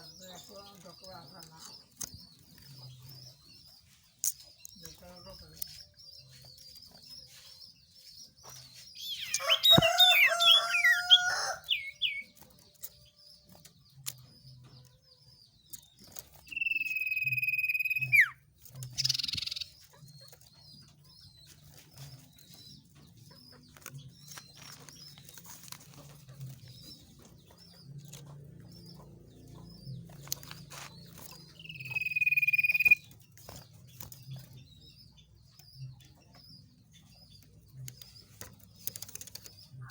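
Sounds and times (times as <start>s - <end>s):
crowing bird call: 9.0s - 12.2s.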